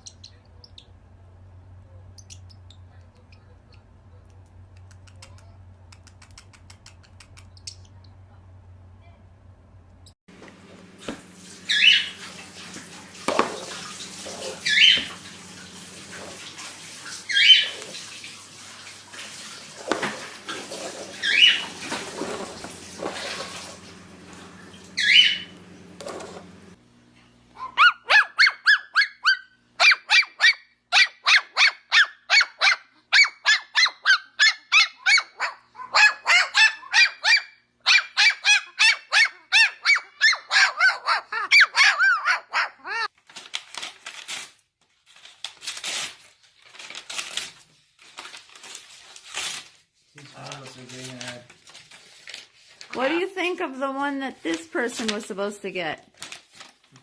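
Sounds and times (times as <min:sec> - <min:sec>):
low steady hum: 0:00.0 - 0:16.5
cockatiel calling: 0:11.7 - 0:12.2, 0:14.6 - 0:15.1, 0:17.3 - 0:17.8, 0:21.2 - 0:21.7, 0:25.0 - 0:25.5.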